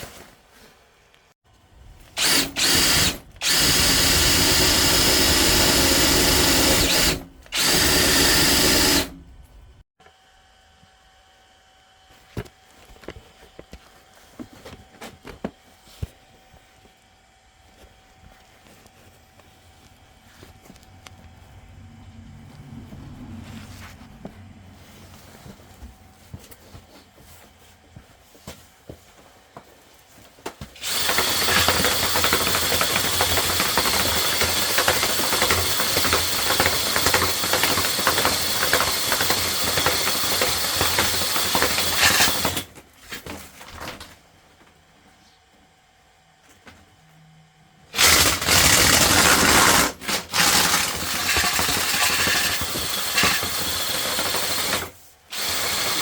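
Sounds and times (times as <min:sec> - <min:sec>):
drain-cleaning machine spinning: 0:30.8 - 0:42.6, 0:48.0 - 0:56.0.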